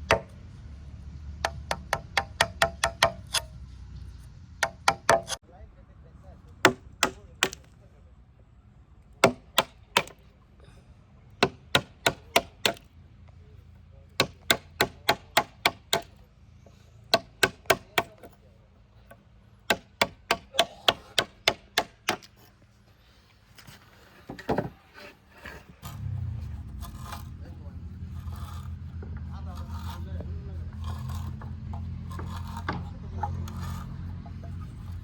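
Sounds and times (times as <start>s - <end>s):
hammer striking timber: 0.0s - 0.4s, 1.4s - 3.5s, 4.6s - 5.4s, 6.6s - 7.7s, 9.2s - 10.2s, 11.4s - 12.9s, 14.2s - 16.2s, 17.1s - 18.4s, 19.1s - 22.4s, 30.7s - 35.0s.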